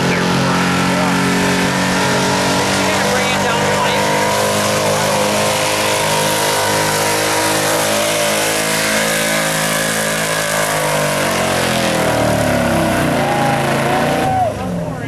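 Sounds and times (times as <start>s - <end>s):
truck engine running under load: 0.0s - 15.0s.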